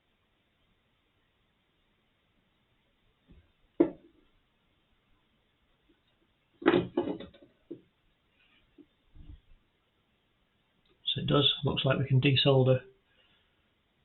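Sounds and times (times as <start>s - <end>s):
knocks and clicks of handling parts: 3.3s - 4.3s, 6.6s - 7.9s.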